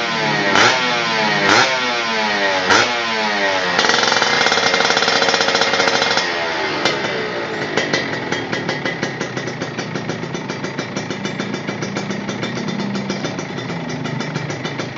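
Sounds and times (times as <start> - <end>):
motorcycle engine revving and idling: 0.0 - 14.9.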